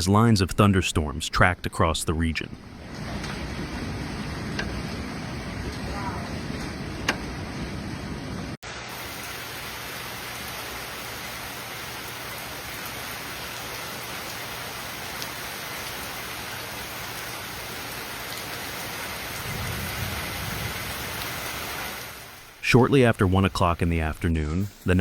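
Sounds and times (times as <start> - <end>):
heavy rain falling: 2.6 - 25.0
thunder rumbling: 19.2 - 22.3.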